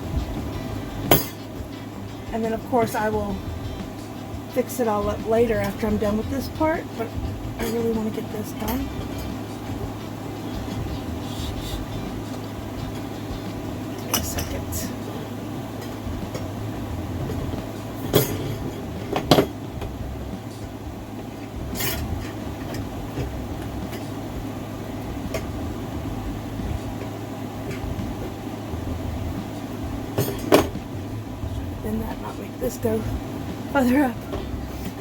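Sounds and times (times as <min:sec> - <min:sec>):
low room hum: 0:00.0 - 0:35.0.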